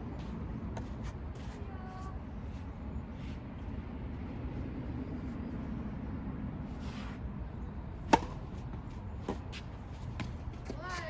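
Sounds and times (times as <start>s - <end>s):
tennis ball impact: 8.0s - 10.9s.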